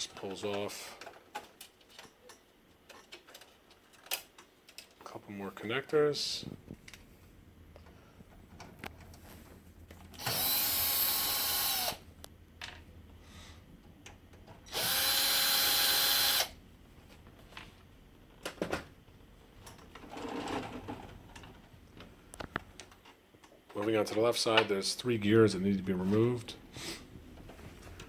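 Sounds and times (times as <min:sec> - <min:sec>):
plastic parts rattling: 0:00.2 - 0:05.1
power screwdriver running: 0:10.2 - 0:12.0, 0:14.7 - 0:16.6.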